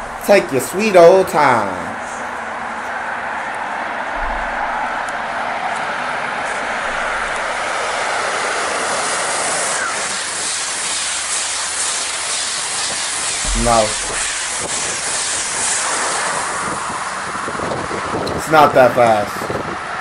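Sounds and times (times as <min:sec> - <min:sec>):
train passing on rails: 0:00.0 - 0:20.0.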